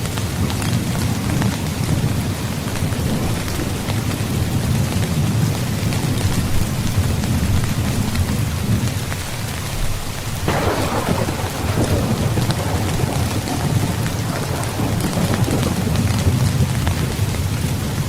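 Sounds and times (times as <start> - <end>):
heavy rain falling: 0.0 - 18.0
low thunder rumble: 10.4 - 18.0
thunderclap: 10.4 - 18.0.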